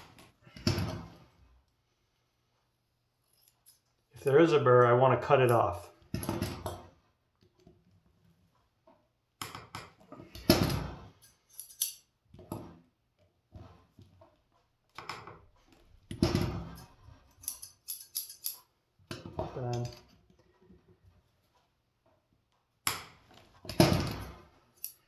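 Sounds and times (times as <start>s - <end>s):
scissor blades scraping: 16.7s - 18.6s.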